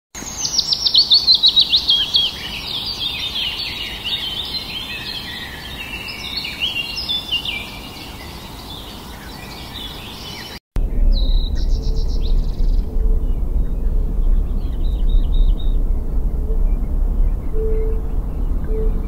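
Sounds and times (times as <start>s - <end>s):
birds singing and chirping: 0.2s - 19.0s.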